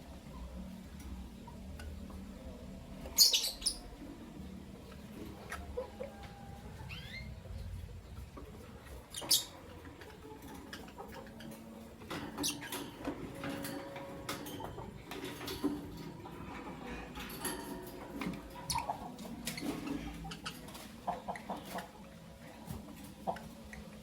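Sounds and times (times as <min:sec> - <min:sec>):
lovebirds chirping: 0:01.3 - 0:15.5, 0:18.4 - 0:22.6.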